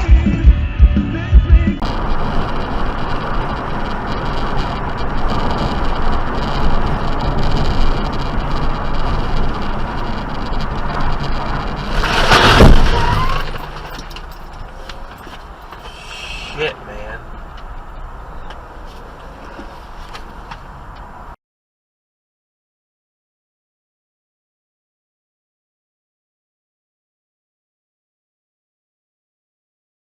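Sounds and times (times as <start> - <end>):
car road and engine noise: 0.0 - 21.4
loud collision noise: 10.2 - 16.6.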